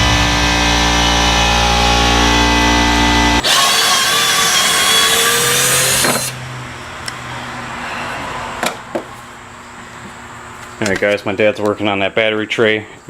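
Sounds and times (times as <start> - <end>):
handheld power tool running: 1.2 - 6.4.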